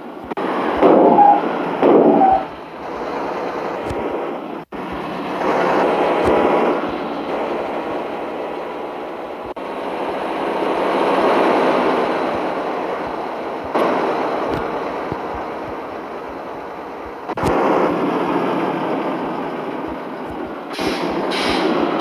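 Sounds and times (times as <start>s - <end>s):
truck engine and road noise: 0.0s - 22.0s.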